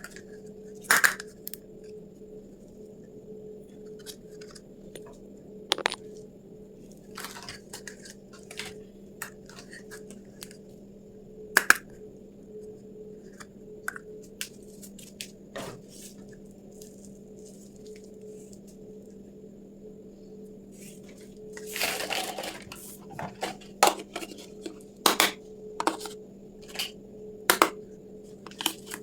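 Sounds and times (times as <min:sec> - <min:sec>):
faint steady hum: 0:00.0 - 0:29.0
packaging rustle: 0:21.0 - 0:24.8.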